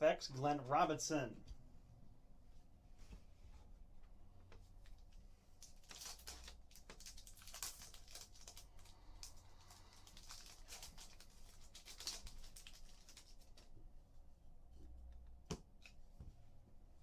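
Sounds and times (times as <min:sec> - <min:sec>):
cards and wrappers rustling: 0:04.8 - 0:13.8.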